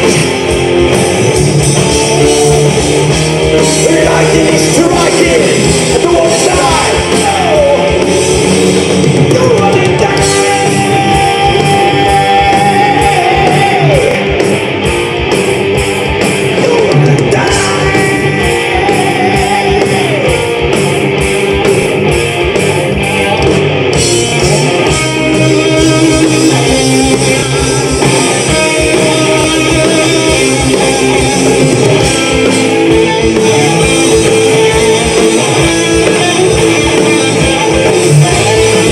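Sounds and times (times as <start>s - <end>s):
bass guitar: 0.0s - 38.9s
drums: 0.0s - 38.9s
electric guitar lead: 0.0s - 38.9s
person singing: 3.6s - 8.3s, 9.2s - 14.3s, 16.6s - 20.4s.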